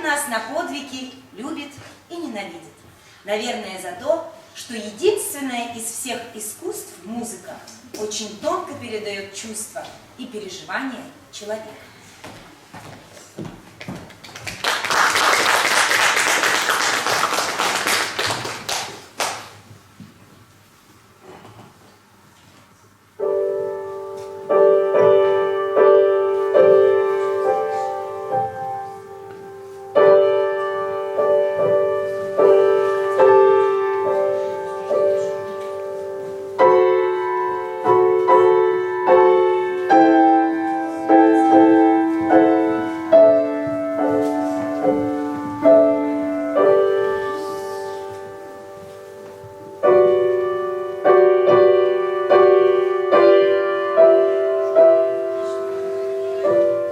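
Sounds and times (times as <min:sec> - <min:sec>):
piano melody: 0:23.1 - 0:56.9.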